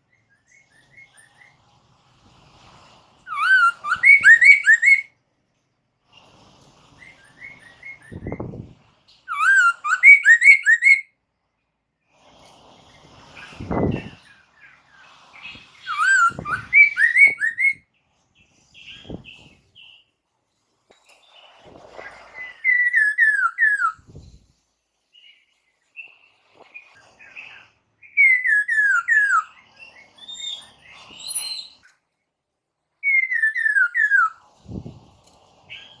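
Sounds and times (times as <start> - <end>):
bird whistling song: 3.3 - 5.1, 7.1 - 8.5, 9.3 - 11.1, 15.4 - 17.8, 22.3 - 24.2, 28.0 - 31.9, 33.0 - 34.9.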